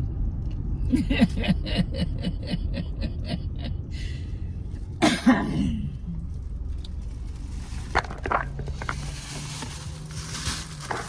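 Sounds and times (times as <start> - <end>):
steady low hum: 0.0 - 11.0
person coughing: 5.0 - 6.1.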